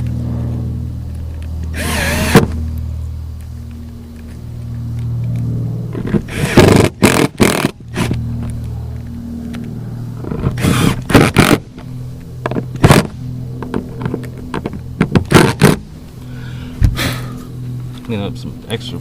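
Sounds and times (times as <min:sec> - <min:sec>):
cordless drill running: 0:01.7 - 0:02.6, 0:06.0 - 0:08.2, 0:10.2 - 0:11.6.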